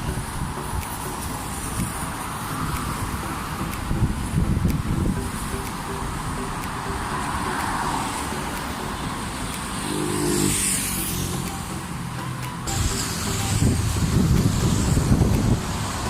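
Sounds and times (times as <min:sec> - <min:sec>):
road traffic rumble: 0:00.0 - 0:16.0
vehicle engine passing close: 0:07.1 - 0:11.9.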